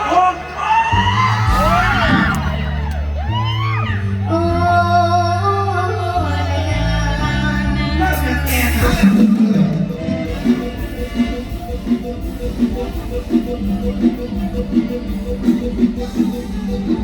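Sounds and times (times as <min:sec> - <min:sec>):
amplified band music: 0:00.0 - 0:17.0
person singing: 0:04.0 - 0:17.0.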